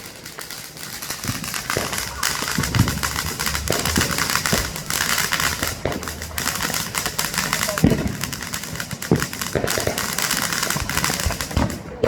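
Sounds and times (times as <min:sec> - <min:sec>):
firecrackers crackling: 0:00.0 - 0:12.0
low firework booms: 0:00.0 - 0:12.0
sharp firework bangs: 0:00.0 - 0:12.0.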